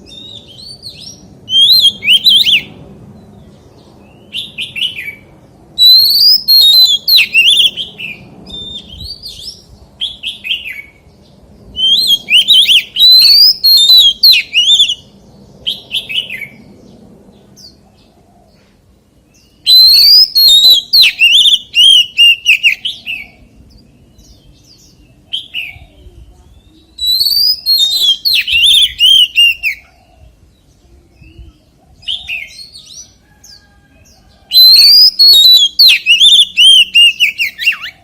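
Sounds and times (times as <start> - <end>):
bird singing whistled phrases: 0.1 - 2.7, 5.8 - 10.9, 11.8 - 15.1, 19.4 - 23.4, 25.3 - 29.9, 34.5 - 38.0.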